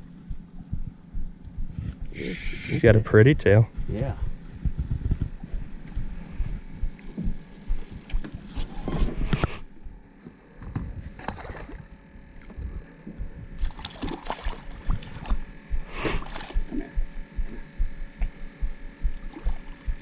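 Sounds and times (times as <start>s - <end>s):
water splashing: 13.6s - 15.5s.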